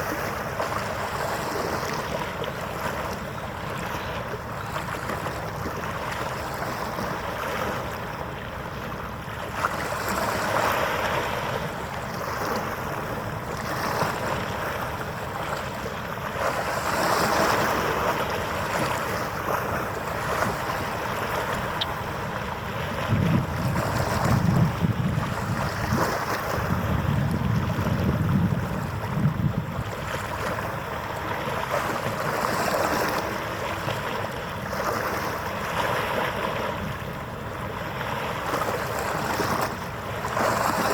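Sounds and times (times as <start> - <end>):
waves washing: 0.0 - 40.9
wind buffeting microphone: 19.7 - 31.0.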